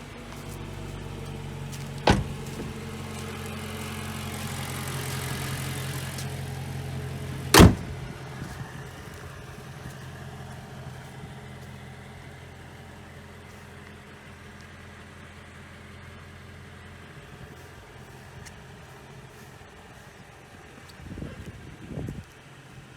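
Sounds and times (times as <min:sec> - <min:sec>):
car engine idling: 0:00.0 - 0:22.9
loud thump: 0:02.0 - 0:02.8, 0:07.5 - 0:08.1.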